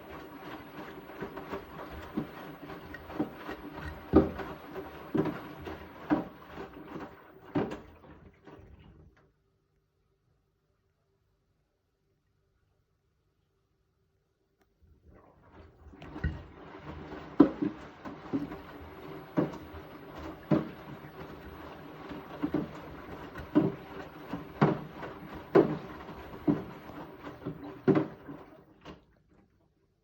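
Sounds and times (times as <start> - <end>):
laundry thudding in drum: 0.0 - 9.0, 15.5 - 29.0
washing machine motor hum: 0.0 - 9.3, 14.8 - 30.0.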